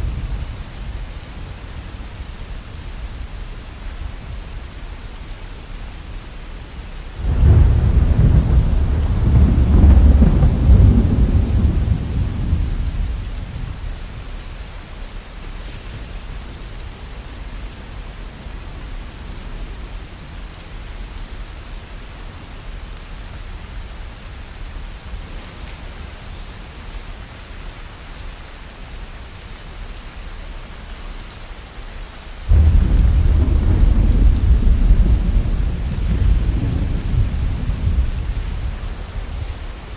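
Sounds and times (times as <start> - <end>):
heavy rain falling: 0.0 - 39.9
thunder rumbling: 7.2 - 14.0, 32.5 - 39.9.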